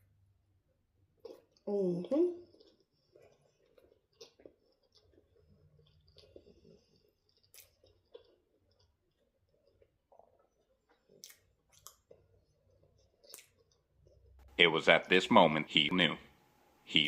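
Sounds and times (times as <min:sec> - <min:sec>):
faint chewing: 0:00.0 - 0:14.6
wet mouth clicks: 0:07.3 - 0:08.9, 0:09.6 - 0:12.2, 0:13.2 - 0:13.8.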